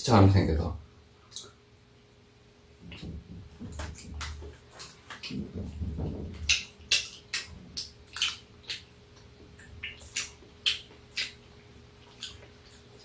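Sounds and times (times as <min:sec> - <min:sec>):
wet lip smacks and mouth clicks: 0:01.3 - 0:01.6, 0:02.9 - 0:05.7, 0:06.3 - 0:13.0
people chewing food: 0:02.8 - 0:13.0.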